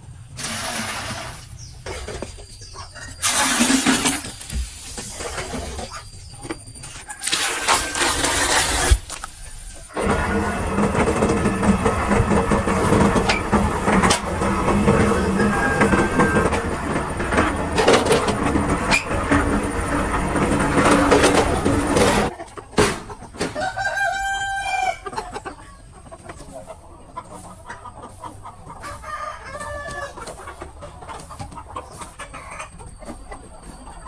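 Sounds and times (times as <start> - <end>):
rooster crowing: 6.9 - 8.2, 14.4 - 17.2, 23.6 - 25.1, 28.8 - 30.2.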